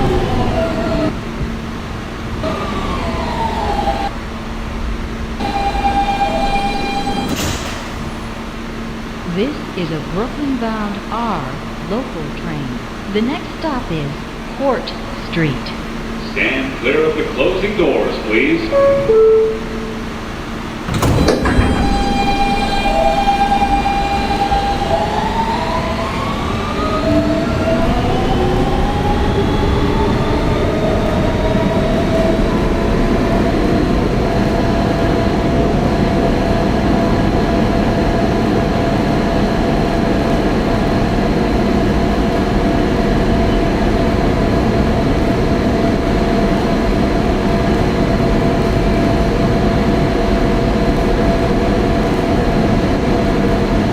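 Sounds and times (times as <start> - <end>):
traction motors whining: 0.0 - 53.9
train doors thudding shut: 5.4 - 8.5, 20.8 - 25.3.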